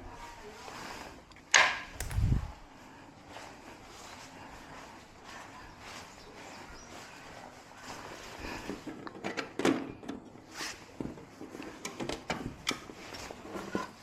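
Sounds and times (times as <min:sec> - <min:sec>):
hard objects clicking and knocking: 0:01.5 - 0:02.5.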